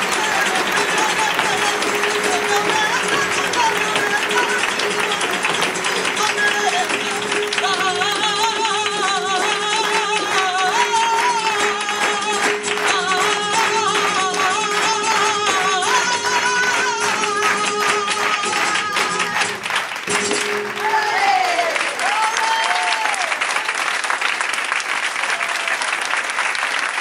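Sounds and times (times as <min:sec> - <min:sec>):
guitar: 0:00.0 - 0:20.8
rapid percussive strikes: 0:00.0 - 0:20.9
person singing flamenco: 0:00.0 - 0:21.5.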